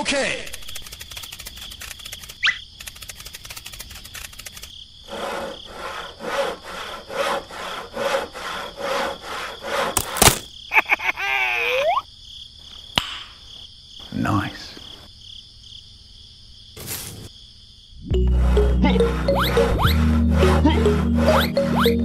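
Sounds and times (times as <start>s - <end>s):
crickets chirping: 0.0s - 19.8s
hand saw cutting wood: 5.1s - 10.4s.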